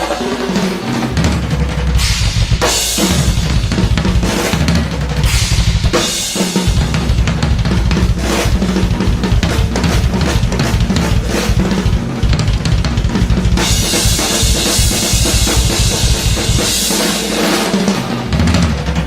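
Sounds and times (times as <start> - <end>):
drum kit playing: 0.0 - 19.0.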